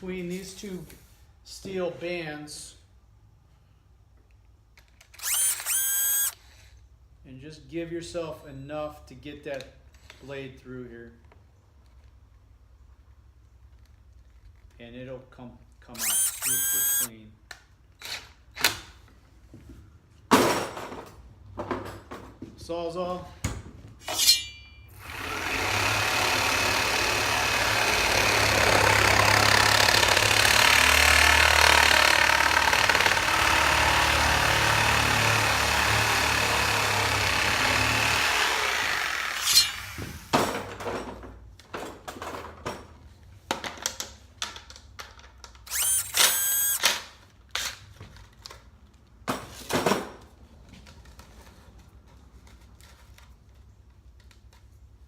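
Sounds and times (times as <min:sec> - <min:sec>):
reciprocating saw cutting pipe: 0:05.2 - 0:06.4, 0:16.0 - 0:17.1, 0:24.2 - 0:40.3, 0:45.7 - 0:46.9.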